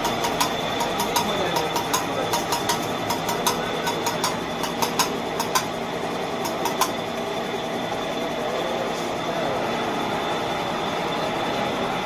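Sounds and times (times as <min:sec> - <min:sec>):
sharp metallic knocks: 0:00.0 - 0:05.8, 0:06.4 - 0:07.0
steady mechanical hum: 0:00.0 - 0:12.0.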